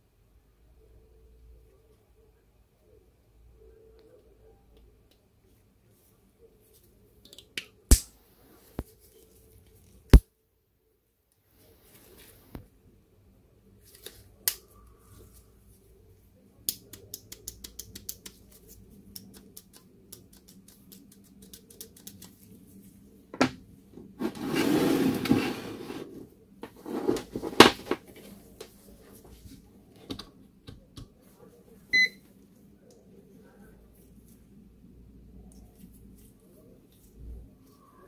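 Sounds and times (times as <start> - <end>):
scraping and rustling: 24.0 - 29.6.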